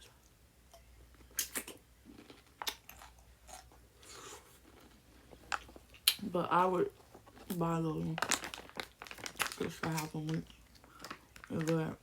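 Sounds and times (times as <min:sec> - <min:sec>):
person chewing pickle: 0:00.7 - 0:06.2.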